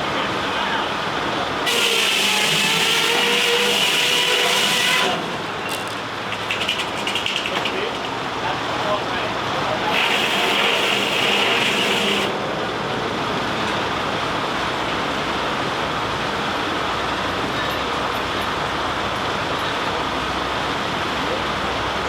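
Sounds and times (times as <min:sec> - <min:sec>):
sawmill machinery running: 0:00.0 - 0:22.0
steam hiss: 0:09.9 - 0:12.4.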